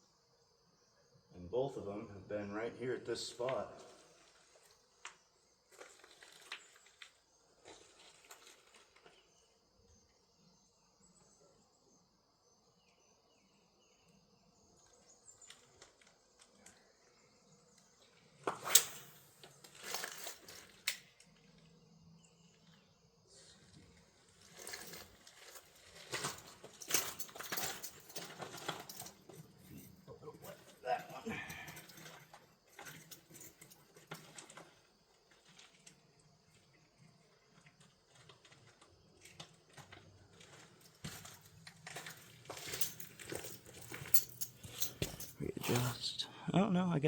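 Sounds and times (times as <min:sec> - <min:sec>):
faint insect drone: 0:00.0 - 0:47.0
handling rustling and clattering: 0:05.7 - 0:09.4, 0:18.4 - 0:21.6, 0:23.6 - 0:36.9, 0:37.5 - 0:46.0.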